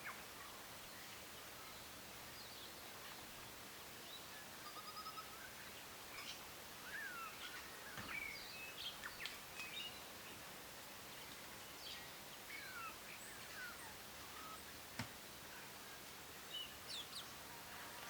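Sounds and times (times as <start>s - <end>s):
background hiss: 0.0s - 18.0s
birds chirping: 11.1s - 14.8s.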